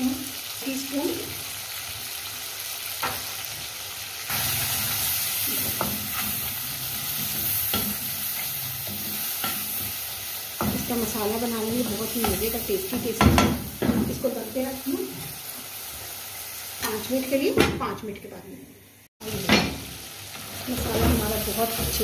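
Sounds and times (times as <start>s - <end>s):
food sizzling in hot oil: 0.0s - 18.2s, 19.2s - 22.0s
spatula knocking and scraping pan: 5.5s - 10.0s, 10.6s - 14.3s, 20.7s - 22.0s.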